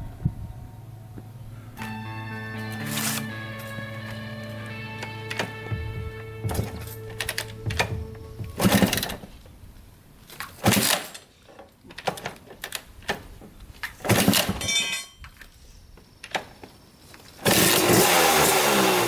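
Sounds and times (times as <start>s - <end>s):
dirt bike engine running: 1.2s - 9.3s
dirt bike kick-start kicks: 2.6s - 9.6s, 10.2s - 19.0s.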